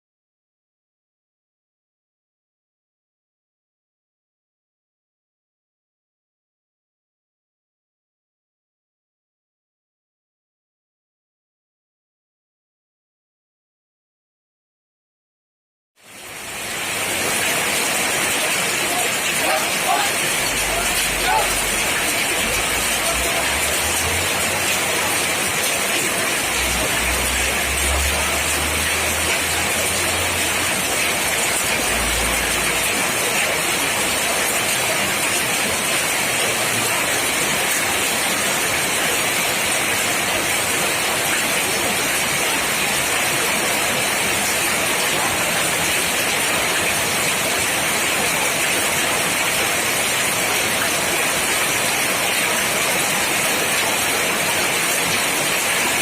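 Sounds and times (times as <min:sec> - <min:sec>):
heavy rain: 0:16.0 - 0:56.0.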